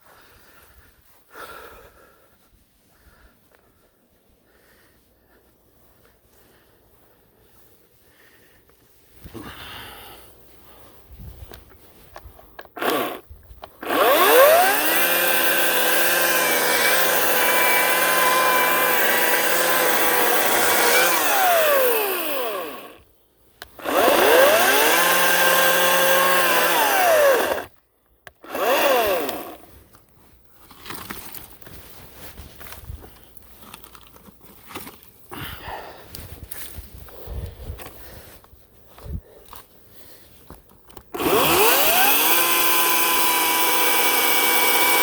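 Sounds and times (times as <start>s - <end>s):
electric chainsaw whining: 12.8s - 23.0s, 23.6s - 29.7s, 41.1s - 45.0s.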